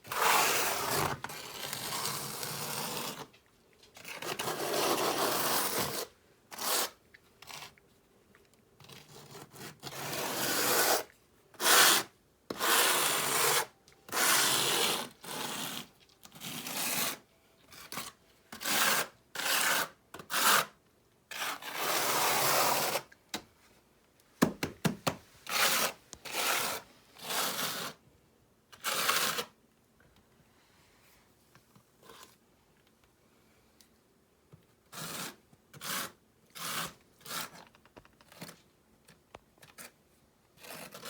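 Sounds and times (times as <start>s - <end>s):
trowel scraping mortar: 0.1s - 3.3s, 4.0s - 7.8s, 8.8s - 23.1s, 25.5s - 28.0s, 34.9s - 37.6s, 40.6s - 41.0s.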